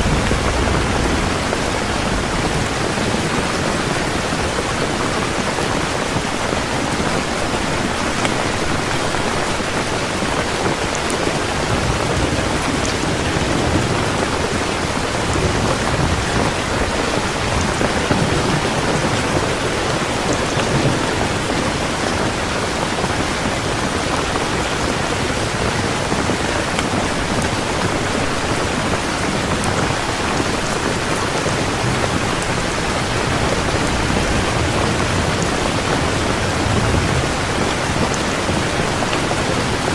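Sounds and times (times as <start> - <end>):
low rolling thunder: 0.0 - 6.0, 10.7 - 22.6, 28.0 - 39.9
heavy rain falling: 0.0 - 39.9.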